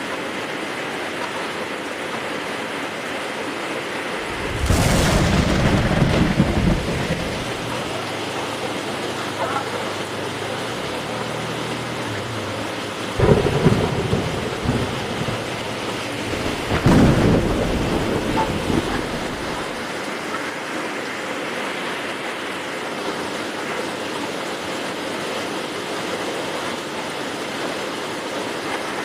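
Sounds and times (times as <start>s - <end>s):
heavy rain falling: 0.0s - 29.0s
thunder crack and rumble: 4.2s - 19.9s.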